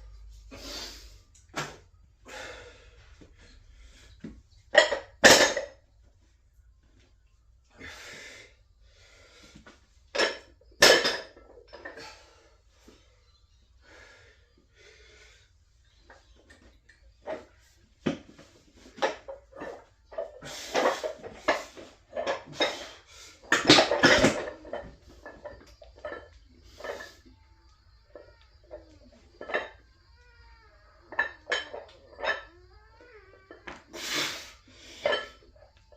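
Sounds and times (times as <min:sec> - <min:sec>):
metal weights clanking: 0:23.5 - 0:27.2.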